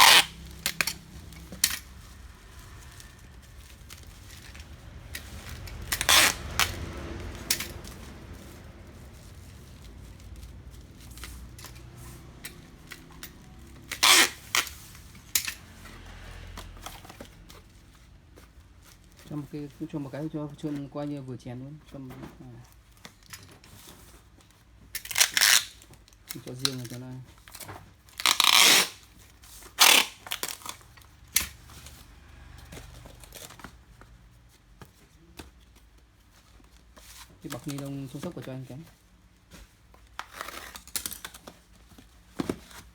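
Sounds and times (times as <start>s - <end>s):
plastic packing wrap crinkling: 0.0s - 15.0s, 24.9s - 31.6s, 39.7s - 42.9s.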